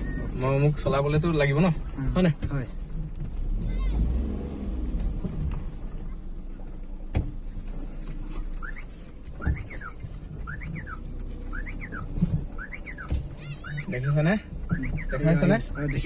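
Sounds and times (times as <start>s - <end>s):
car engine rumbling: 0.0s - 16.0s
bird chirping: 8.6s - 13.9s.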